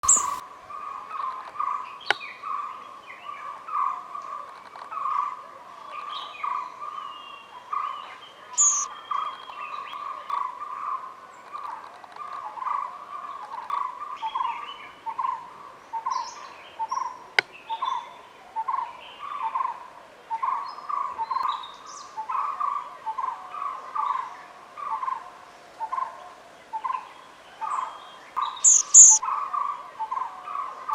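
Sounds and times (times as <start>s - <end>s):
bird repeating short notes: 0.0s - 0.4s, 8.6s - 8.9s, 28.6s - 29.2s
high thin bird calls: 0.0s - 0.4s, 8.6s - 9.4s, 28.4s - 29.2s.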